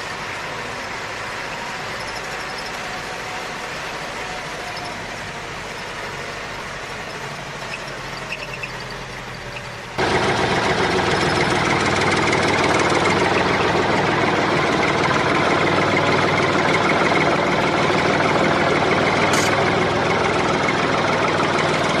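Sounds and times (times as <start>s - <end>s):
motor running steadily: 9.9s - 22.0s.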